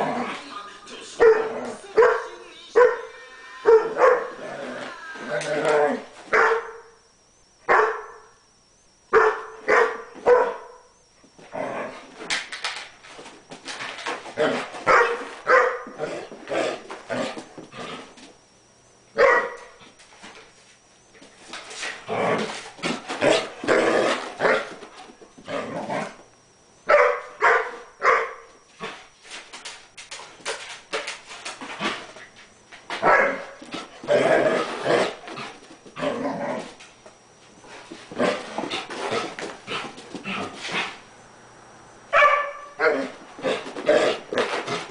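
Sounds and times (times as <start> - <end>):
dog barking and yipping: 1.2 - 3.1, 3.7 - 4.4, 6.3 - 6.8, 7.7 - 8.2, 9.1 - 10.8, 14.8 - 15.9, 19.2 - 19.7, 26.9 - 28.4, 42.1 - 43.1.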